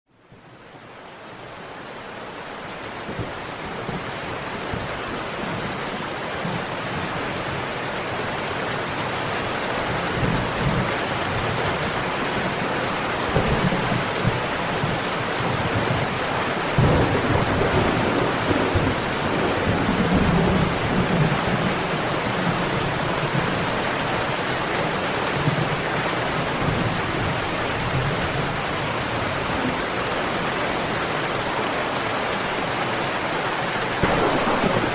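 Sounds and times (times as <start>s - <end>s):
steady rain: 0.1s - 34.9s
rolling rumbles of thunder: 16.7s - 23.6s, 34.0s - 34.9s.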